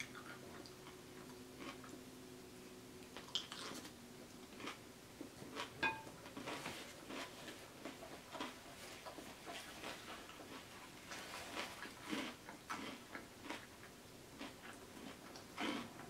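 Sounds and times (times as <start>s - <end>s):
mouth chewing food: 0.0s - 2.0s, 3.0s - 5.8s, 6.4s - 16.0s
chopsticks clinking on glass bowl: 5.8s - 6.1s.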